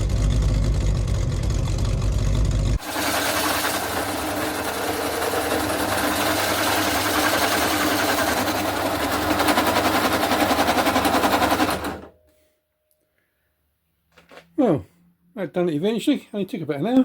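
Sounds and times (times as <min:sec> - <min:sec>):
welder crackling buzz: 0:02.8 - 0:09.8.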